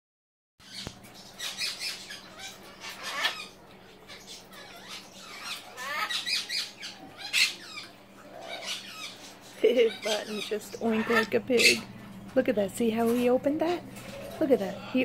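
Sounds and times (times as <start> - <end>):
parrot squawking: 0.6 - 11.9.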